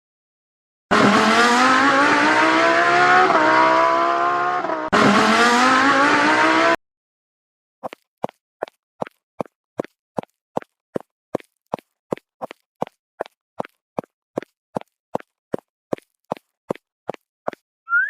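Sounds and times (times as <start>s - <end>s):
racing car engine revving: 0.9s - 6.8s.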